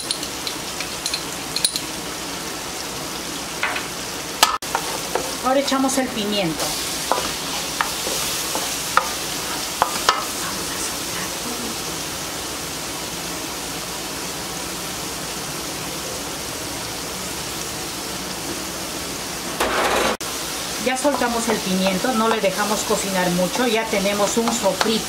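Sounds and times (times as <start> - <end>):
vegetables sizzling in a metal pan: 0.0 - 25.0
wooden spoon stirring: 6.6 - 10.2
plate and spoon knocking pan: 9.8 - 10.3.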